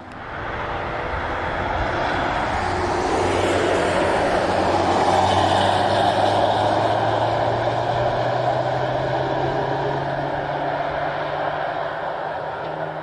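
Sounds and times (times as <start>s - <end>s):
car driving by at speed: 0.0s - 13.0s.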